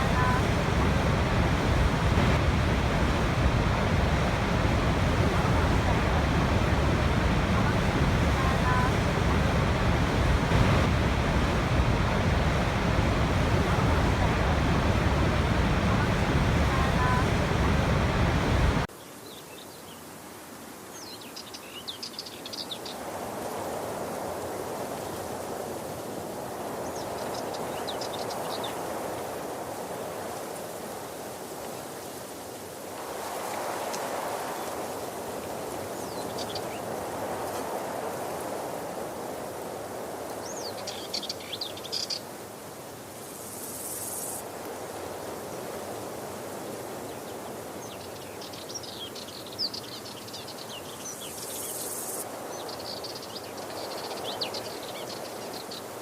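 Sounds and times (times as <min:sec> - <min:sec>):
running water: 0:00.0 - 0:18.9
waterfall rushing: 0:00.0 - 0:18.9
small birds twittering: 0:47.1 - 0:56.0.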